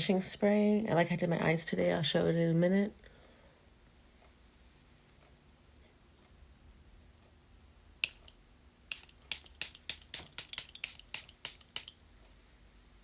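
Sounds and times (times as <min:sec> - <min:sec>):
spray bottle spritzes: 0:08.0 - 0:12.0.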